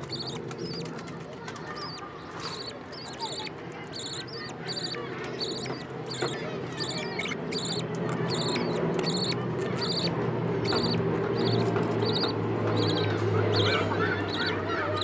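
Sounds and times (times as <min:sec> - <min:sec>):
baby birds cheeping: 0:00.0 - 0:15.0.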